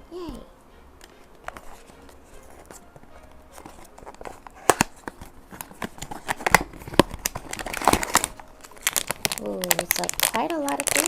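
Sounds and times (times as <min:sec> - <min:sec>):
cardboard box being opened: 0:03.5 - 0:09.4.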